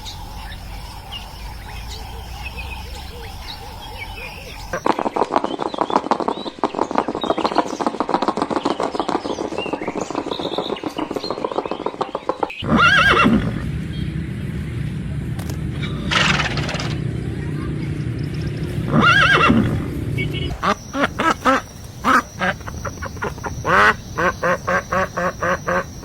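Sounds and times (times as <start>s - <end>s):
horse hooves clattering: 4.6s - 13.8s, 18.9s - 26.0s
horse neighing: 12.6s - 13.7s, 18.9s - 19.9s, 20.5s - 26.0s.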